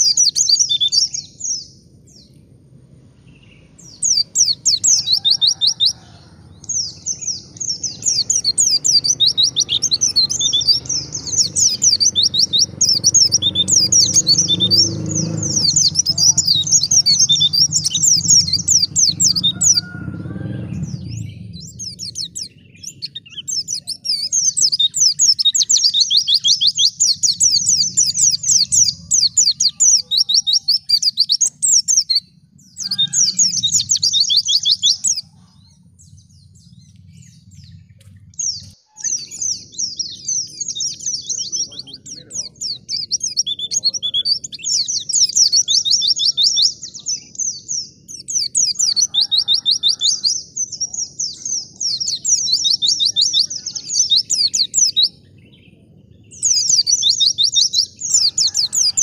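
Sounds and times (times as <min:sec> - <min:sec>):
bird twittering song: 0:00.0 - 0:59.0
faint low rumble: 0:00.1 - 0:05.2, 0:09.8 - 0:25.7, 0:30.8 - 0:43.9.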